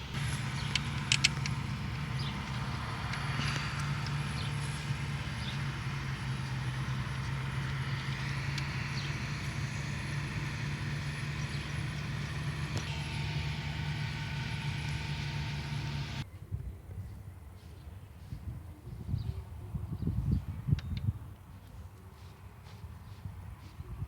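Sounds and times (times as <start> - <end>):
low mechanical drone: 0.0 - 16.3.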